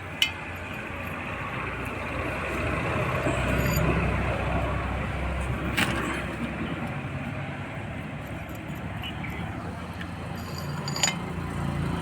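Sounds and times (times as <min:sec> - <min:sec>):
vehicle passing by: 0:01.0 - 0:08.2, 0:09.5 - 0:12.0.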